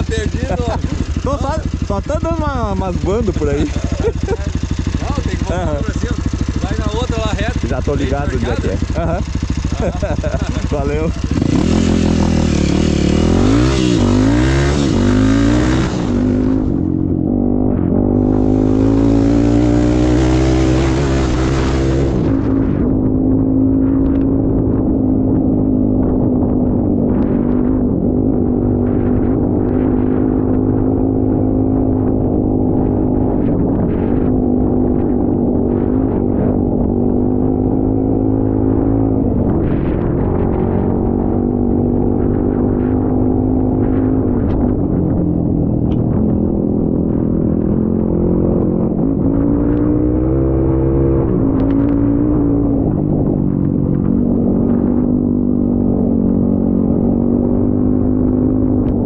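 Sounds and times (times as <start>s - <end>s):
vehicle engine running: 0.0s - 23.1s.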